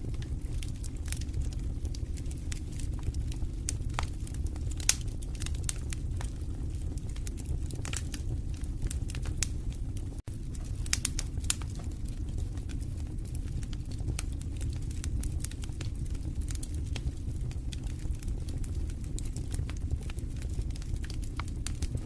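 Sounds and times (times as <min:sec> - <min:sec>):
flames rumbling: 0:00.0 - 0:22.0
wood fire crackling and popping: 0:00.0 - 0:22.0.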